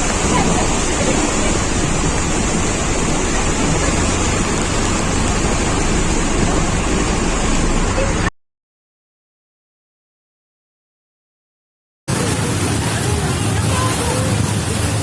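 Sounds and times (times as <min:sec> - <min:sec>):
rushing floodwater: 0:00.0 - 0:08.3, 0:12.1 - 0:15.0
wind: 0:00.0 - 0:08.3, 0:12.1 - 0:15.0.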